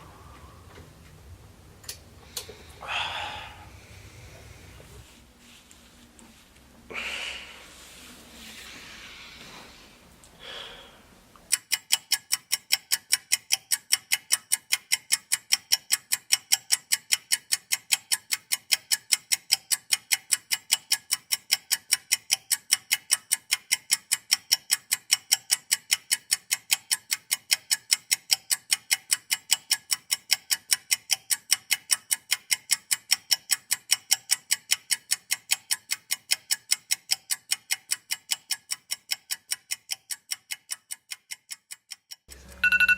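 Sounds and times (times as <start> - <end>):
clock ticking rapidly: 11.5 - 42.9.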